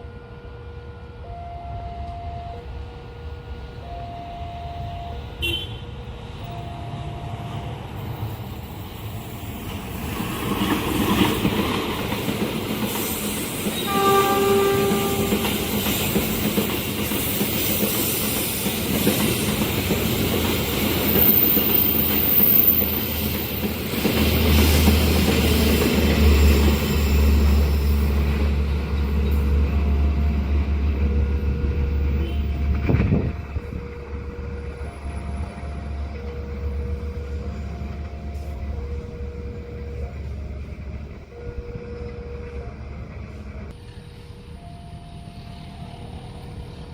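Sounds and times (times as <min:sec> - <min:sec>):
train horn: 0:00.0 - 0:07.6, 0:13.7 - 0:16.4, 0:26.4 - 0:44.0
two-note crossing alarm: 0:01.2 - 0:02.8, 0:03.8 - 0:05.4, 0:06.4 - 0:07.7.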